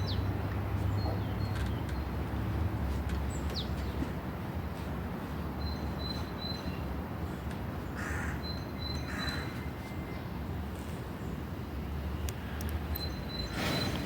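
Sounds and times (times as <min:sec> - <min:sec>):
crow cawing: 0:08.0 - 0:08.4.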